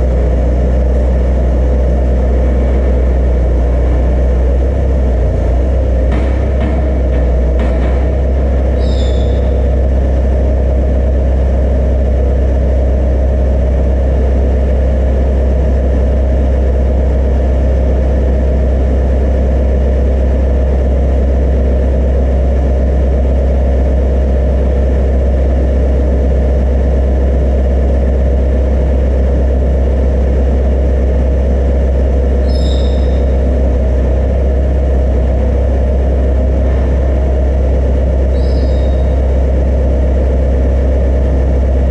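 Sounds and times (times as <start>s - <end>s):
machine deep hum: 0.0s - 41.9s
high squeak: 8.7s - 9.7s, 32.4s - 33.4s, 38.3s - 39.2s.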